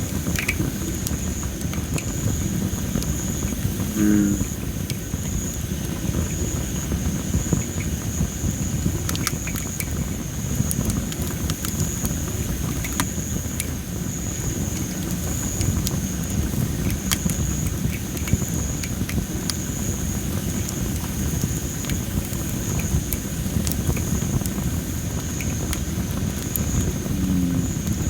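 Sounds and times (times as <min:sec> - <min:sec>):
steady low rumble: 0:26.5 - 0:28.0.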